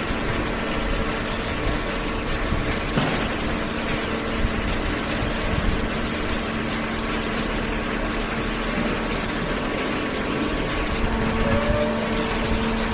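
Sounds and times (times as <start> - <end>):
baler machine humming: 0.0 - 12.9.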